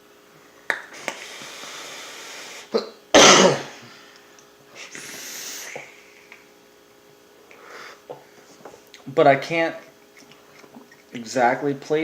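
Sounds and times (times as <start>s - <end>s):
breathy hissing: 0.9s - 2.8s, 4.7s - 6.2s, 7.5s - 8.2s
person coughing: 2.7s - 3.8s.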